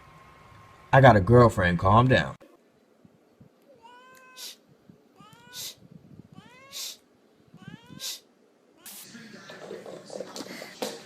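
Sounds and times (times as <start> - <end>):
cat meowing: 3.7 - 4.6, 5.2 - 8.2.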